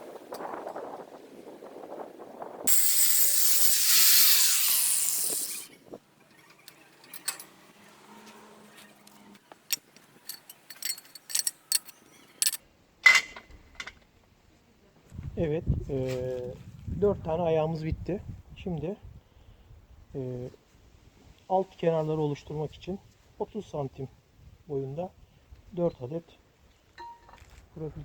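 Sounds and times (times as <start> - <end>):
angle grinder grinding steel: 2.7 - 6.7, 10.3 - 12.6.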